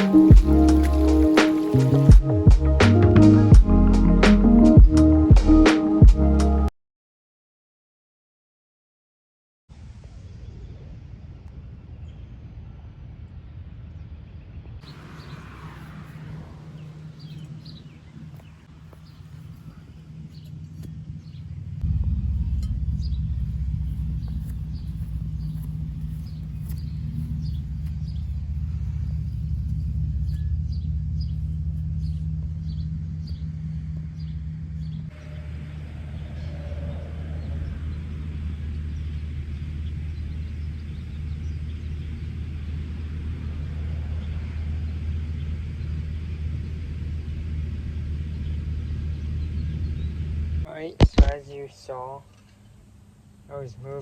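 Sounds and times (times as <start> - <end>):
small engine running: 0.0 - 2.2, 14.9 - 50.6
birds chirping: 0.0 - 2.3, 14.3 - 54.0
low rumble and hum: 0.0 - 6.6, 9.7 - 54.0.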